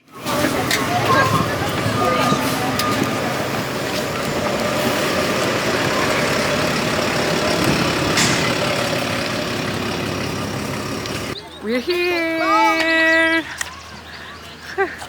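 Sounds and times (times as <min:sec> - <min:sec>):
transit vehicle engine rumble: 0:00.0 - 0:11.6.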